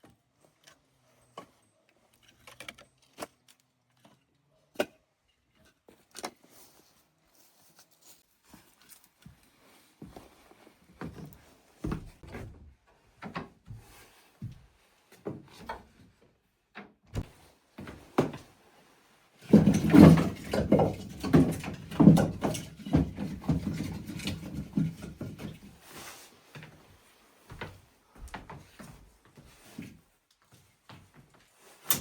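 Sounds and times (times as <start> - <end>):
wooden knocks and scrapes: 19.4 - 25.8
objects clattering and rubbing: 19.4 - 26.3.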